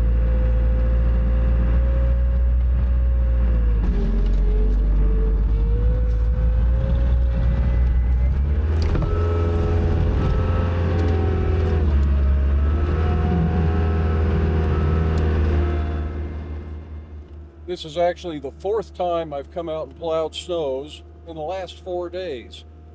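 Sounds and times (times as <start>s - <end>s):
loader engine running under load: 0.0s - 22.9s.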